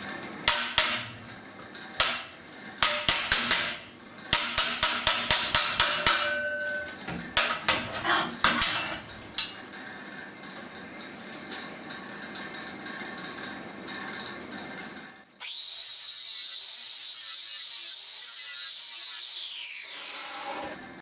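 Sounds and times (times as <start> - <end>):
hammer striking sheet steel: 0.5 - 1.4, 2.0 - 9.6.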